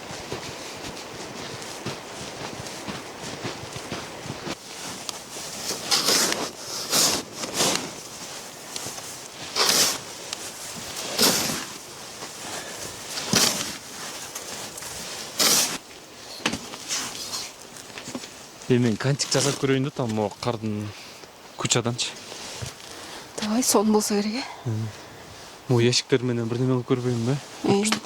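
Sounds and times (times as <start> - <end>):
snow crunching: 0.0 - 20.2
background hiss: 0.0 - 28.0.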